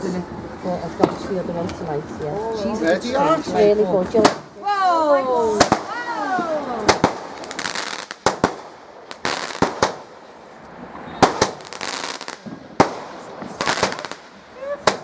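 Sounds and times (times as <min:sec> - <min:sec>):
fireworks bangs: 0:04.0 - 0:15.0
fireworks crackling hiss: 0:05.4 - 0:15.0.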